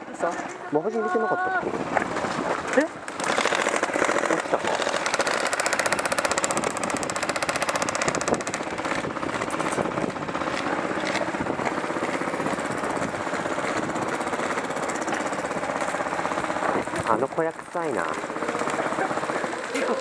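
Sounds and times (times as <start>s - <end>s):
airsoft gun firing: 3.1s - 9.0s.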